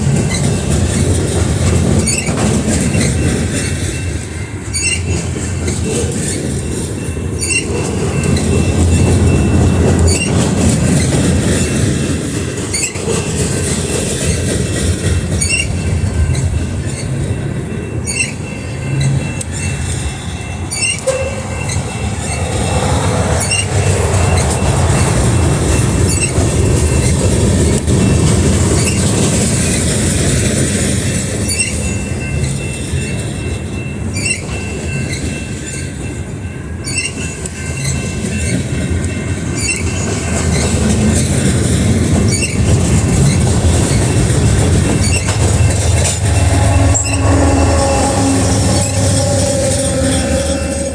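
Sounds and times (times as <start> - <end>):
freight train rumble: 0.0 - 50.9
wheels clicking over rail joints: 0.0 - 50.9
high wheel squeal: 2.0 - 3.8, 4.7 - 6.5, 7.4 - 11.3, 15.4 - 17.2, 18.0 - 27.2, 28.8 - 29.1, 31.5 - 32.6, 39.6 - 40.8, 42.3 - 50.9.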